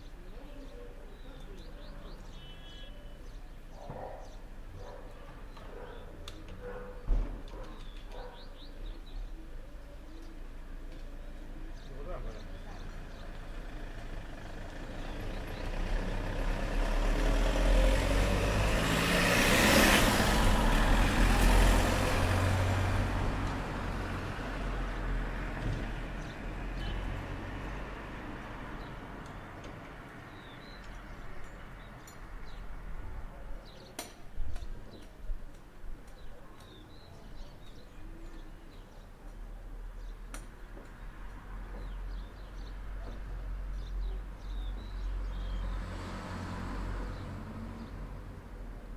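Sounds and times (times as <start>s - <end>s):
vehicle driving past: 13.4s - 28.4s, 45.6s - 48.3s.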